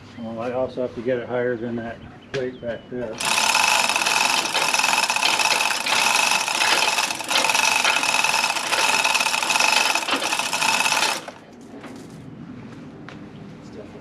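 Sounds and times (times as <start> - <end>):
electric motor whining: 3.2 - 11.4.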